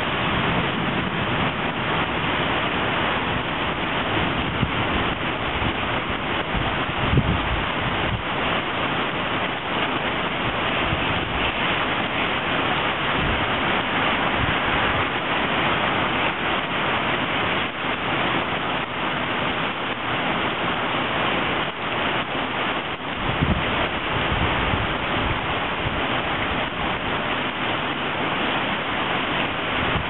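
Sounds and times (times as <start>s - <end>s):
rain falling on street: 0.0s - 30.0s.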